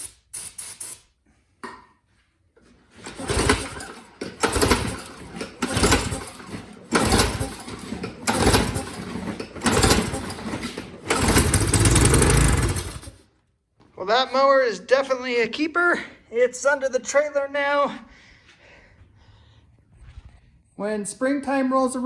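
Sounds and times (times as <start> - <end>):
recoil starter pulls on mower engine: 2.8 - 13.2.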